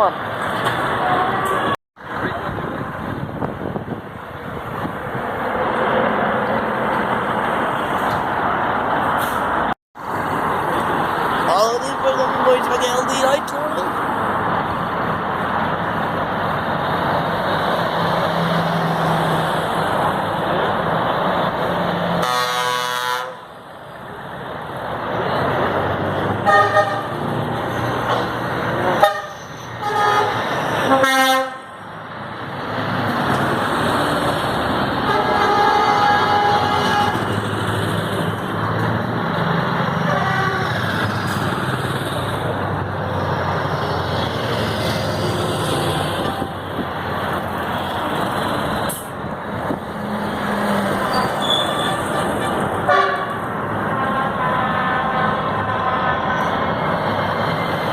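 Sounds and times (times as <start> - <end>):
trucks driving past: 0.0 - 57.9
air horns blasting: 22.2 - 23.5, 26.4 - 27.3, 28.9 - 31.7, 35.0 - 37.3, 40.0 - 40.9, 52.8 - 56.7.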